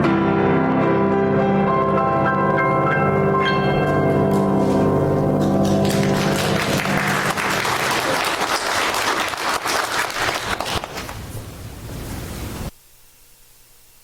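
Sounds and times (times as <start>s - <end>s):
music final chord: 0.0s - 7.7s
congregation applauding: 4.6s - 11.3s.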